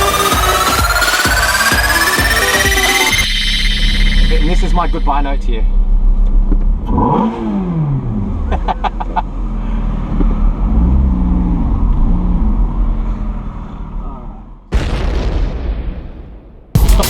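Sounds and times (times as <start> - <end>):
sports car engine revving: 5.8 - 14.0.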